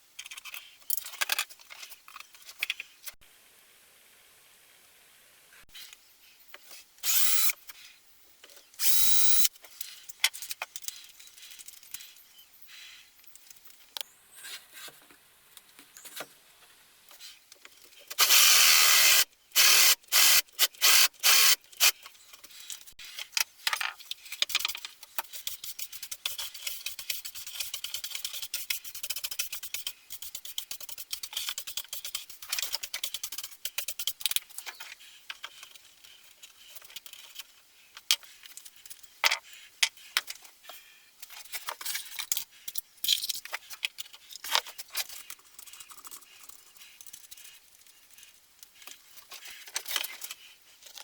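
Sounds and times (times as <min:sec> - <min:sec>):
small clicks and handling noise: 0:00.1 - 0:03.2, 0:05.8 - 0:12.4, 0:13.2 - 0:14.1, 0:21.7 - 0:51.0
power drill bursts: 0:07.0 - 0:07.6, 0:08.8 - 0:09.5, 0:18.2 - 0:21.6.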